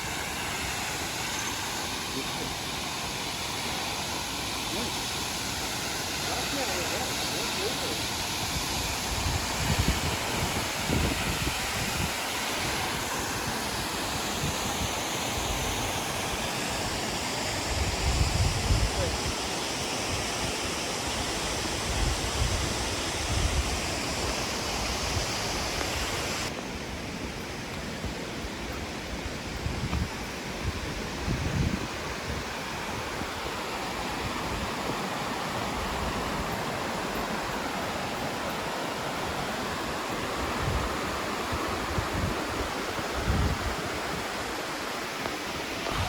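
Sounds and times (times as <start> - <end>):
waterfall roaring: 0.0 - 46.0
wind buffeting microphone: 8.1 - 15.8, 17.6 - 19.4, 28.0 - 44.5, 45.3 - 46.0.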